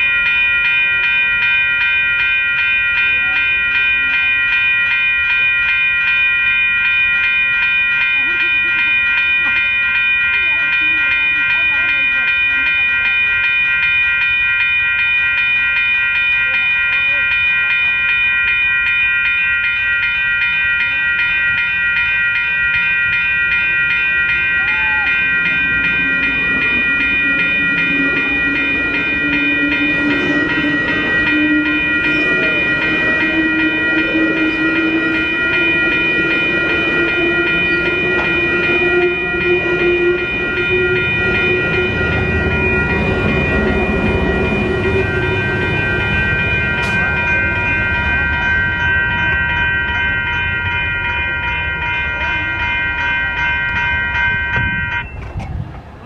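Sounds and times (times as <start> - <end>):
crossing signal bell ringing: 0.0 - 56.0
train rumbling past: 22.7 - 56.0.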